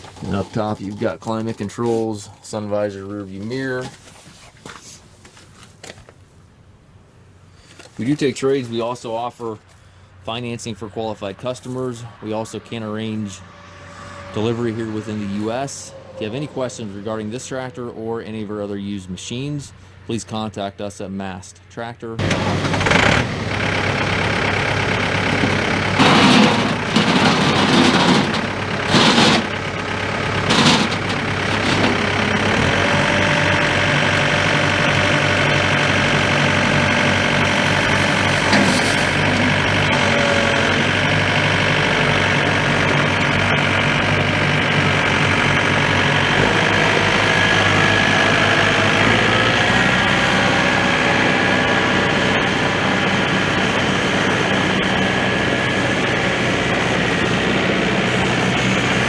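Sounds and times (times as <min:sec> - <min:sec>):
diesel engine running: 0:12.1 - 0:17.9, 0:22.2 - 0:59.0.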